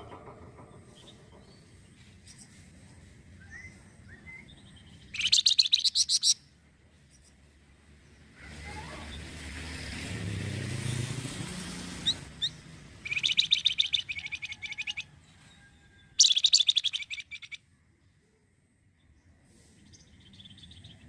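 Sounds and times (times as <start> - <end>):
low rumble of passing vehicle: 0.0 - 21.0
songbird singing high notes: 3.4 - 6.4, 12.0 - 15.0, 16.2 - 17.6.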